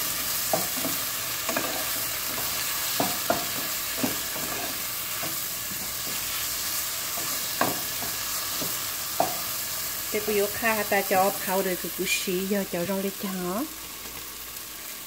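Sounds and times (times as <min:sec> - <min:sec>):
okra sizzling in oil: 0:00.0 - 0:15.0
spatula knocking against pan: 0:02.4 - 0:04.6.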